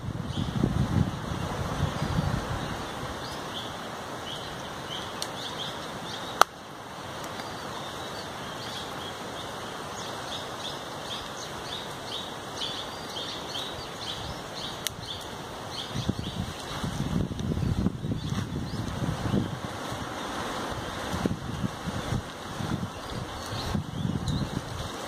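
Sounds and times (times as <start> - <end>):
small birds chirping: 0.2 - 25.0.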